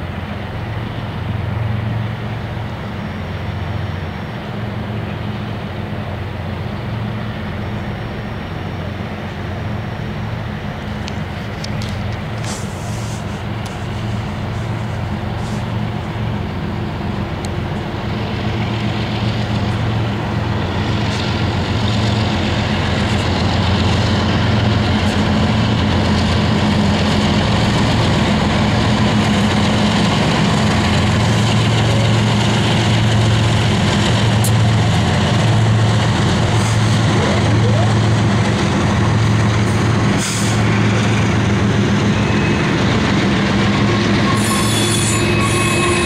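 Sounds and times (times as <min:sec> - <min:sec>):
diesel locomotive engines droning: 0:00.0 - 0:46.0
freight cars rolling on rails: 0:00.0 - 0:46.0.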